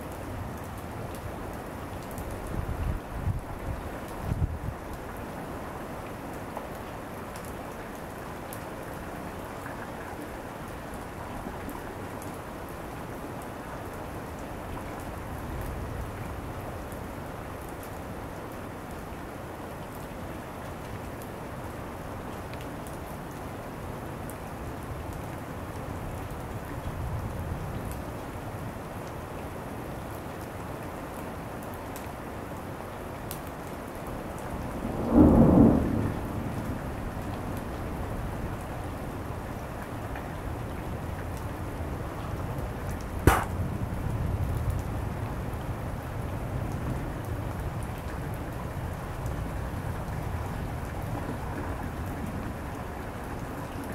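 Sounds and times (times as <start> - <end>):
faint low thunder rumble: 34.4 - 41.1
raindrop ticks: 42.2 - 43.7.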